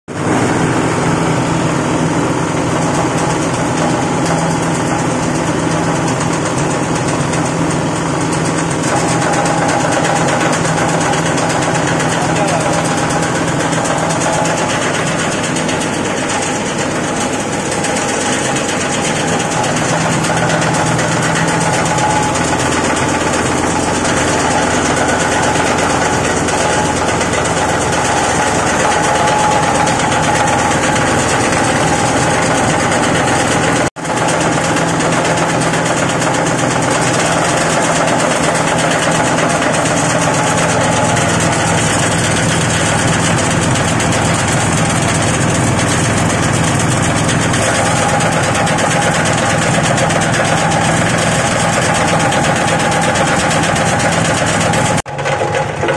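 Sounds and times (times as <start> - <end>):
shredding machine droning and rattling: 0.1 - 55.9.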